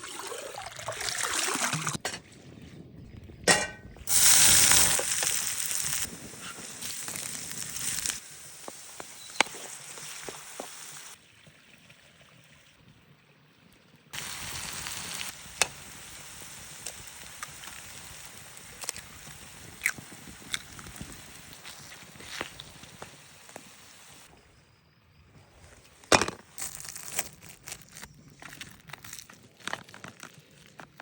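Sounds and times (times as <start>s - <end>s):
food sizzling in a pan: 4.1s - 11.2s, 14.2s - 24.3s
sharp crackles and clicks: 4.1s - 11.2s, 14.2s - 24.3s, 26.5s - 31.0s.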